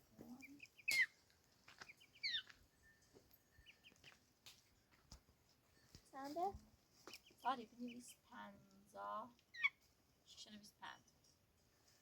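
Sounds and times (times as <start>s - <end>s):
birds chirping: 0.0s - 4.3s, 7.0s - 8.3s, 9.5s - 9.8s.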